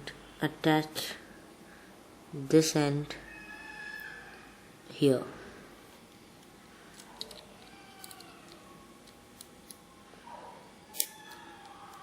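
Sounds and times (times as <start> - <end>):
faint clicks handling phone parts: 6.1 - 9.8.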